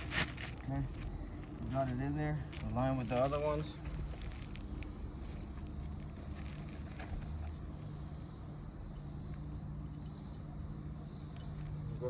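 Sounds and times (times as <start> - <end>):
insect chorus buzzing: 0.0 - 12.0
steady low hum: 0.0 - 12.0.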